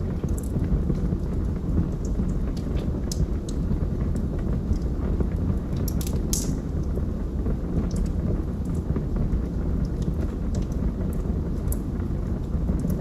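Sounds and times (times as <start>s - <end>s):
fire crackles and pops: 0.0s - 13.0s
log fire burning: 0.0s - 13.0s.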